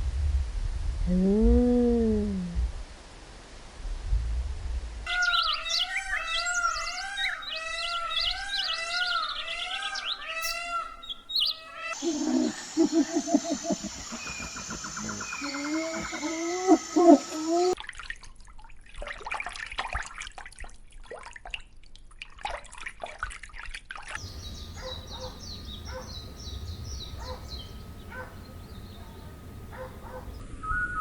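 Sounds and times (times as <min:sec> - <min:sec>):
birds chirping: 0:05.1 - 0:17.8, 0:24.2 - 0:30.4.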